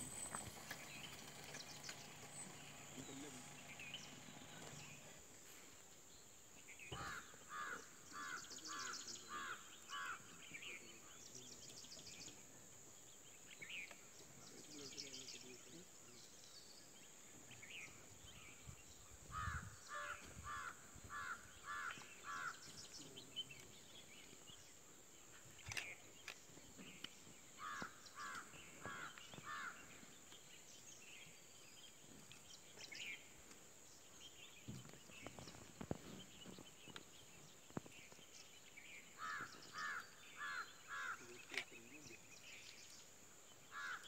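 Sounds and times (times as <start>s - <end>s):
faint outdoor background: 0.0s - 44.0s.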